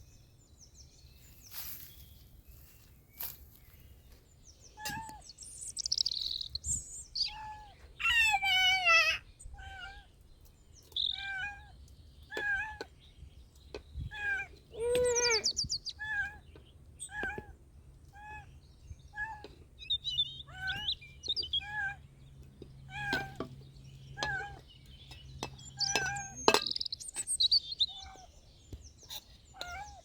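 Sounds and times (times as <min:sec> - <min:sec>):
bird chirps: 0:00.0 - 0:30.0
small animal high-pitched cries: 0:07.2 - 0:10.1, 0:11.0 - 0:11.7, 0:12.3 - 0:12.9, 0:14.1 - 0:16.4, 0:17.0 - 0:18.5, 0:19.1 - 0:19.6, 0:20.5 - 0:22.0, 0:22.9 - 0:23.4, 0:27.8 - 0:28.4, 0:29.1 - 0:30.0.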